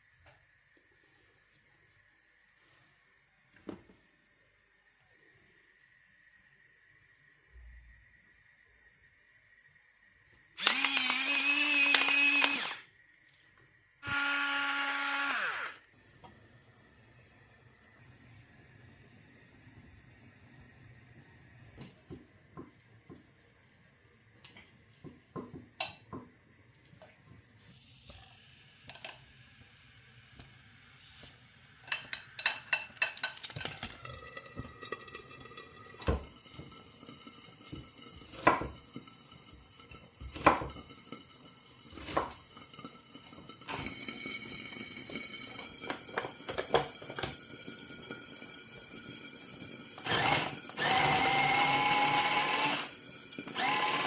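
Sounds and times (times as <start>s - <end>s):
tap water running: 24.9s - 29.7s, 31.8s - 54.0s
dishes clinking: 31.9s - 34.7s.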